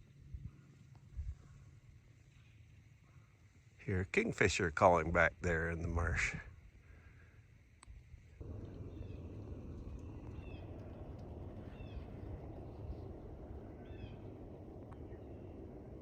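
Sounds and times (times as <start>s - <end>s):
steady low rumble: 8.0s - 16.0s
birds chirping: 8.4s - 16.0s.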